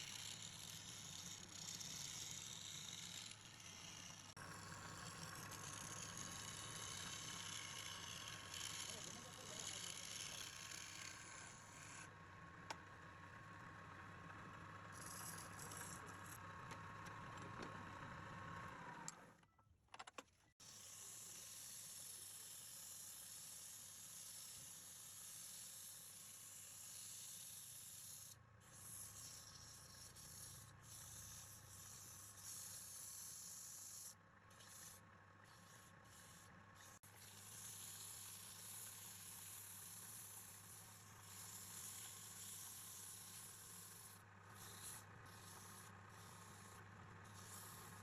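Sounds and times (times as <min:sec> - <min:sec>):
tool scraping spinning wood: 0:00.0 - 0:12.1, 0:14.9 - 0:16.4, 0:21.0 - 0:48.0
wood lathe motor whine: 0:00.0 - 0:19.3, 0:33.5 - 0:48.0.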